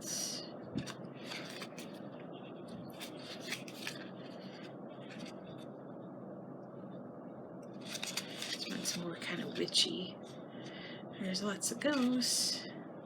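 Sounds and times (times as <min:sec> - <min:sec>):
paper rustling and scraping: 0:00.8 - 0:05.7, 0:07.8 - 0:09.4.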